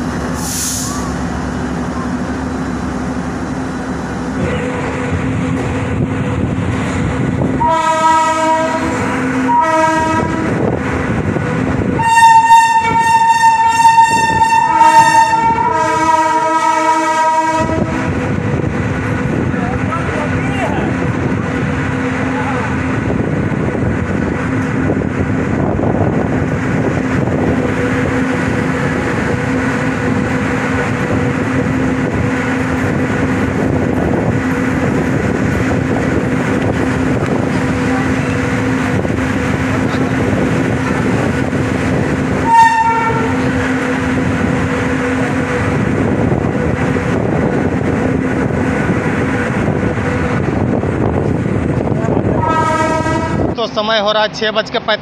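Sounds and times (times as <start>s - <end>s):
train rumble and hum: 0.0s - 55.0s
train horn toot: 7.5s - 10.6s, 11.9s - 18.1s, 42.4s - 43.6s, 52.3s - 53.6s.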